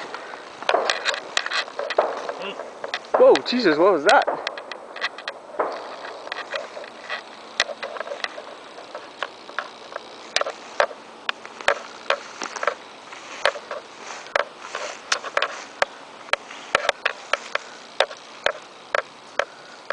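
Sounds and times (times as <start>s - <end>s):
faint steady hum: 0.0s - 19.9s
sharp clicks and snaps: 0.6s - 12.8s.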